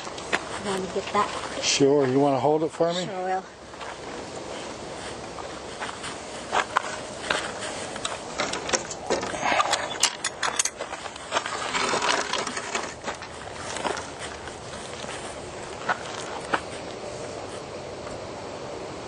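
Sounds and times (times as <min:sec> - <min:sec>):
crunching rustles: 0:03.6 - 0:18.2.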